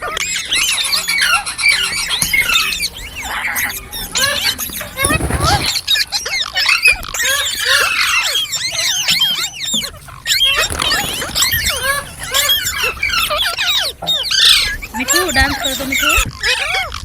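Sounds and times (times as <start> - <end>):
parrot chirping and squealing: 0.0 - 17.0.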